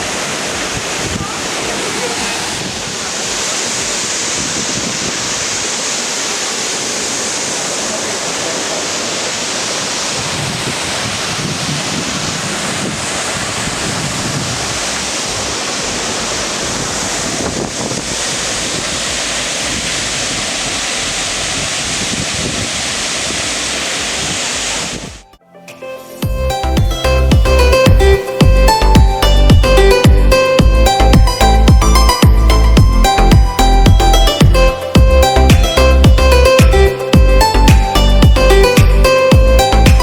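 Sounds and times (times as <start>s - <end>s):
wind buffeting microphone: 0.0s - 5.8s, 10.0s - 25.3s
waterfall rushing: 0.0s - 25.3s, 25.9s - 40.0s.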